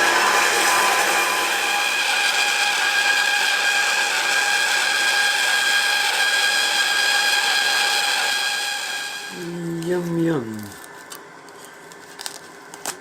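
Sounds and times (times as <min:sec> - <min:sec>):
bandsaw cutting metal: 0:00.0 - 0:09.3.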